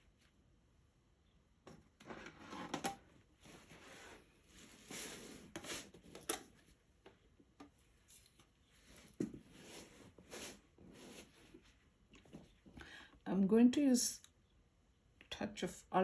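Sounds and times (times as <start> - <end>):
paintbrush scrubbing on palette: 9.5 - 11.7.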